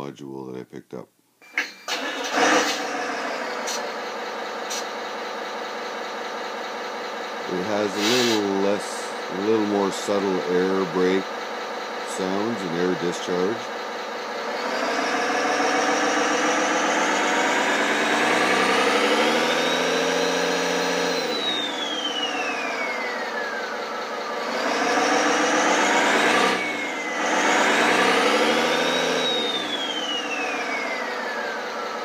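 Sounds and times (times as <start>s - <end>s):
simulated diesel engine revving: 1.9s - 32.0s
brief hiss: 7.9s - 8.6s.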